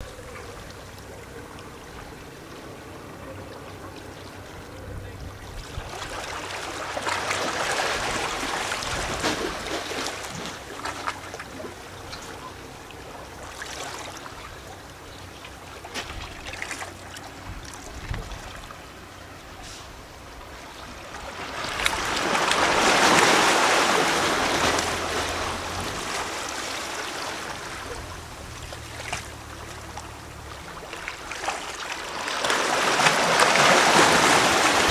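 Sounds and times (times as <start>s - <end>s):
small waves lapping against rocks: 0.0s - 34.9s
larger waves surging: 20.9s - 34.9s.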